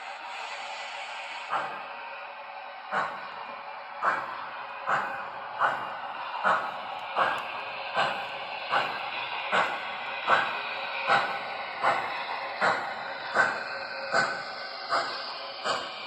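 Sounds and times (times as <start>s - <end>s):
continuous steam hiss: 0.0s - 16.0s
model locomotive steam chuffs: 0.0s - 16.0s.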